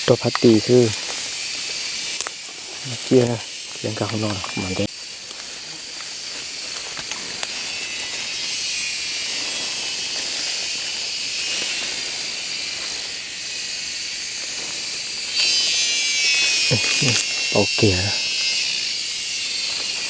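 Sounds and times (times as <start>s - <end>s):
insect chorus drone: 0.0s - 20.0s.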